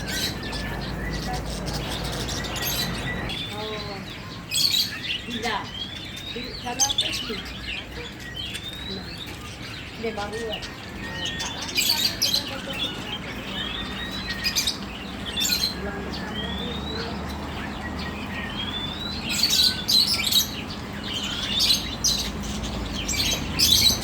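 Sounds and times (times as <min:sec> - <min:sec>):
budgerigar chirping and warbling: 0:00.0 - 0:24.0.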